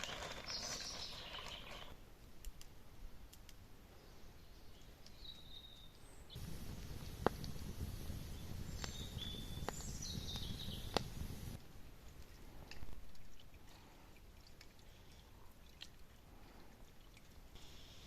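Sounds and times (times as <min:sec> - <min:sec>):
bird chirps: 0:00.3 - 0:01.9, 0:04.5 - 0:06.5, 0:08.2 - 0:11.2
low rumble: 0:06.4 - 0:11.6.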